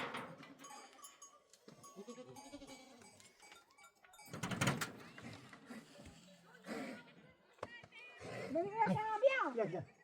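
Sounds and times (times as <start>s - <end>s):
livestock bleating: 2.0s - 3.1s.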